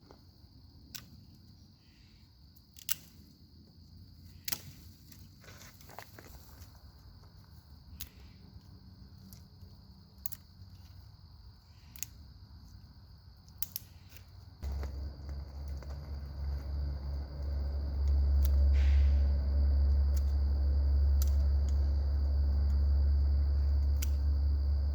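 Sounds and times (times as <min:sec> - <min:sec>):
campfire crackling: 0:13.1 - 0:24.9
low rumble: 0:14.6 - 0:24.9.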